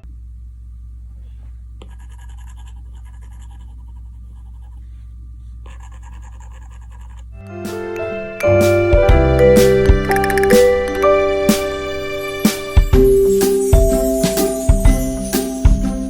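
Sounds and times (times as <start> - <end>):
steady low hum: 0.0 - 10.2
stylus scratching on tablet screen: 1.8 - 5.0, 5.7 - 7.3.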